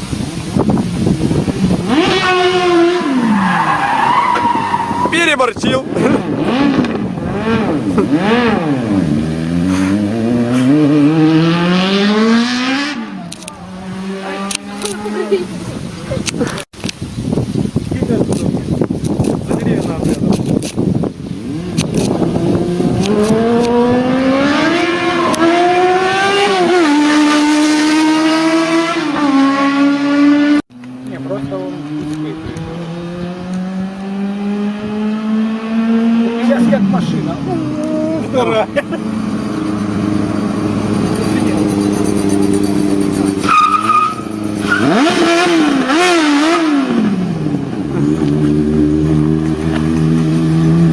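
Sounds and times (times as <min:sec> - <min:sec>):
motorcycle engine revving high: 0:00.0 - 0:16.0, 0:21.4 - 0:50.9
tyre squeal: 0:03.2 - 0:05.2, 0:41.6 - 0:45.0.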